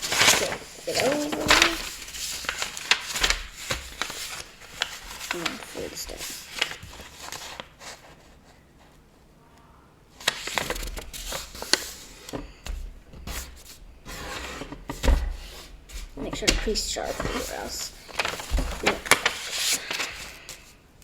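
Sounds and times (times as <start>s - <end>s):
paper being folded and creased: 0.0s - 9.0s, 10.2s - 20.8s.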